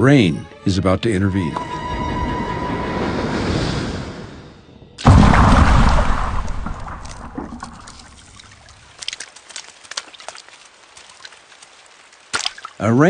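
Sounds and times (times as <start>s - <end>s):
thunder rumbling: 1.9s - 8.7s
raindrops splatting: 5.0s - 13.0s.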